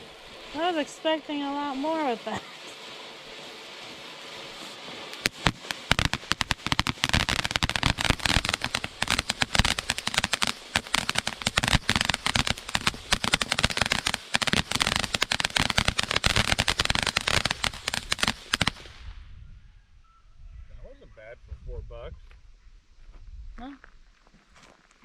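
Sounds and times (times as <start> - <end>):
firework crackling pops: 0.0 - 19.3.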